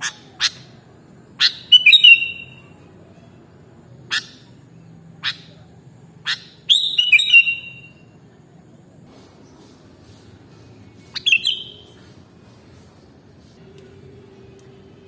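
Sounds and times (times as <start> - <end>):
bird call notes: 1.4 - 2.7, 6.3 - 8.0, 11.2 - 12.0
bird whistled phrase: 1.4 - 2.7, 6.3 - 8.1, 11.2 - 11.9.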